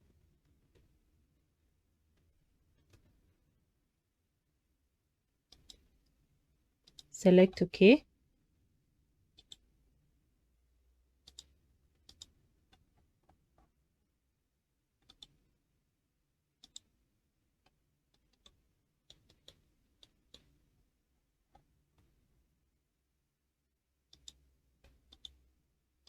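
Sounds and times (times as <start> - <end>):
computer mouse clicks: 5.5 - 5.9, 6.8 - 7.1, 9.3 - 9.6, 11.2 - 13.7, 15.0 - 15.4, 16.6 - 16.9, 17.6 - 20.6, 24.1 - 25.4.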